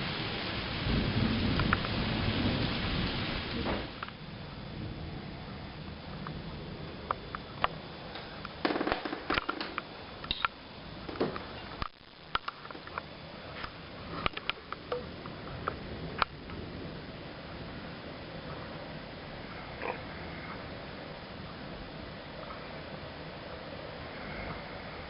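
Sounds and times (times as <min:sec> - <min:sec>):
heavy rain: 0:00.0 - 0:25.0
sharp clicks and ticks: 0:11.8 - 0:16.6.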